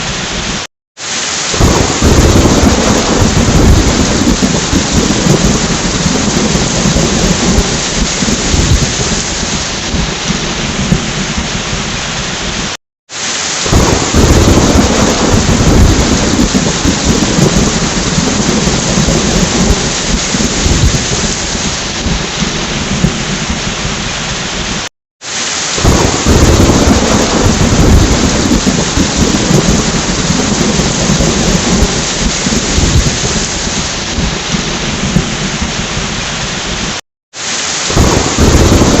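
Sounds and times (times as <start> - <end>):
steady rain: 0.0 - 39.0
rolling thunder: 1.5 - 12.7, 13.6 - 24.8, 25.8 - 37.0, 37.9 - 39.0.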